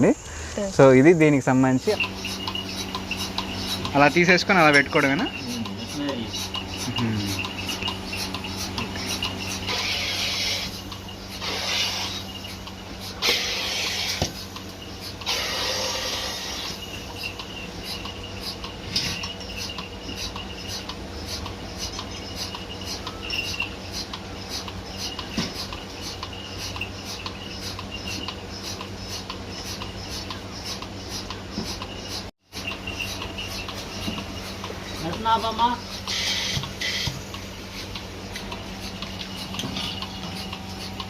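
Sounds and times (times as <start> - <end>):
milking machine motor hum: 0.0 - 41.0
pulsator clicking: 1.7 - 41.0
air hissing: 1.9 - 30.2, 35.4 - 37.9.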